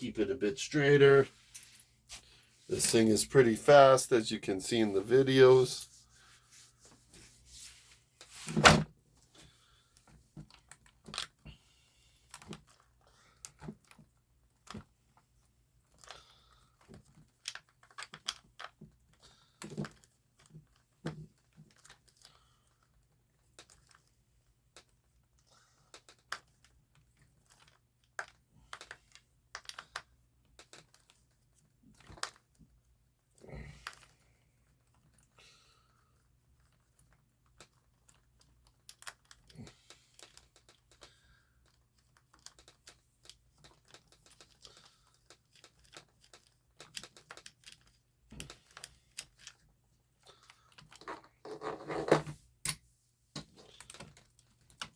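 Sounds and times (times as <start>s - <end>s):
small clicks and taps of handling: 15.8s - 32.8s, 33.8s - 51.6s, 52.7s - 54.9s.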